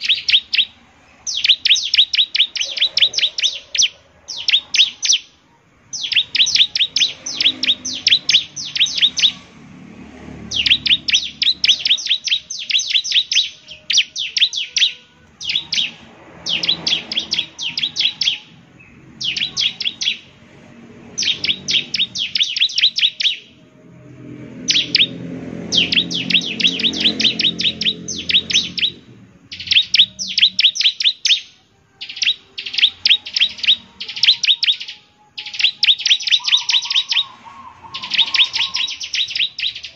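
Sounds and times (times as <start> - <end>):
bird singing high-pitched notes: 0.0 - 39.9.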